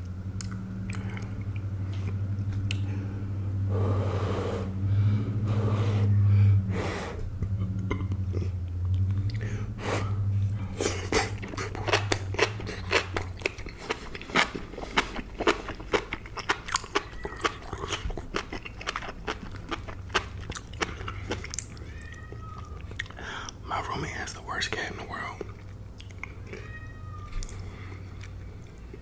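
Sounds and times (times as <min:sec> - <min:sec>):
low steady hum: 0:00.0 - 0:29.0
chewing soft food: 0:00.3 - 0:03.2, 0:10.4 - 0:23.6, 0:25.1 - 0:29.0
wet mouth clicks and smacks: 0:00.4 - 0:02.9, 0:10.8 - 0:21.8, 0:25.3 - 0:26.6.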